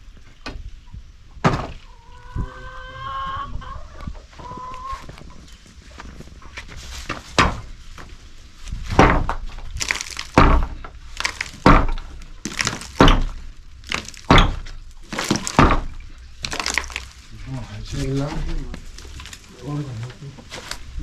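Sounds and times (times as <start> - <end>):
heavy thuds with rasping tail: 8.8 - 9.7, 10.3 - 16.1.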